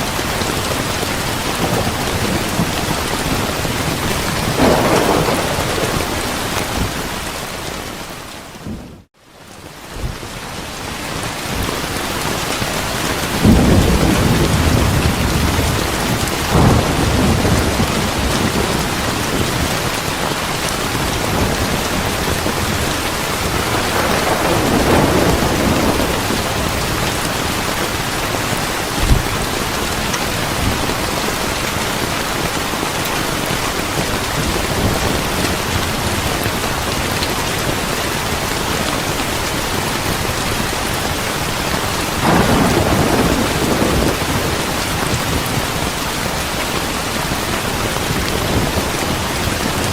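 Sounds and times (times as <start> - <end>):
heavy rain: 0.0 - 49.9
thunder rumbling: 0.1 - 9.1, 12.8 - 49.9
low thump: 29.0 - 29.3.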